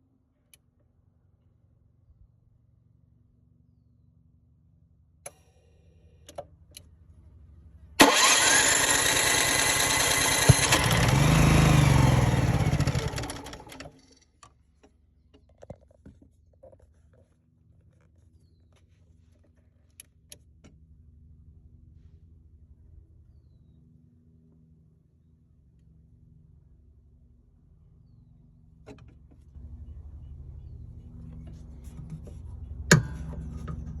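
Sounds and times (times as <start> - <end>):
engine firing and winding down: 8.0 - 14.0
generator engine cranking: 8.0 - 14.2.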